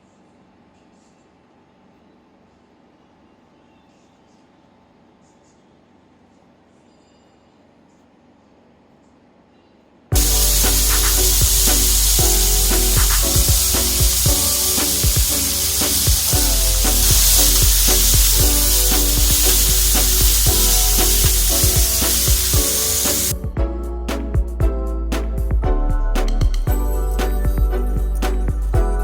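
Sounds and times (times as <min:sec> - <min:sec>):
background music with beat: 0:10.1 - 0:29.0
food sizzling in a pan: 0:10.2 - 0:23.3.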